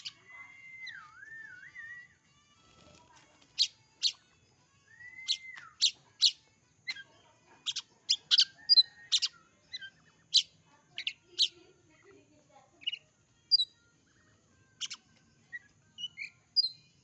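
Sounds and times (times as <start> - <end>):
bird singing high notes: 0.0 - 2.2, 4.8 - 7.1.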